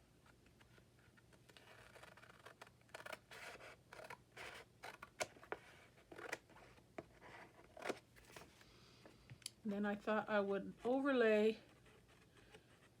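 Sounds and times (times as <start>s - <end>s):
scissors cutting paper: 1.6s - 5.1s.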